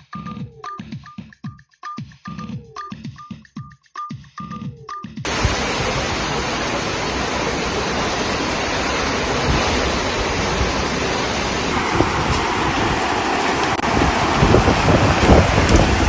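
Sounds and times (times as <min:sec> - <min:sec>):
heavy rain: 0:05.3 - 0:16.0.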